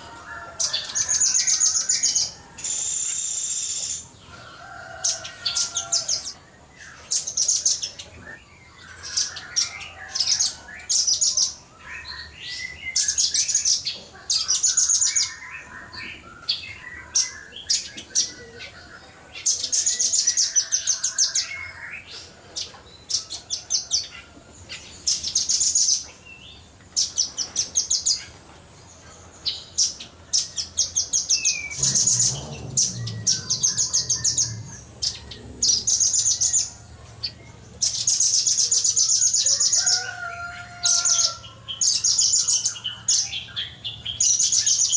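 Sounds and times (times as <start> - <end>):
fainter lower bird calls: 0.0 - 24.3
nuthatch high-pitched trills: 1.2 - 4.1, 5.0 - 6.4
low rumble: 31.6 - 37.2.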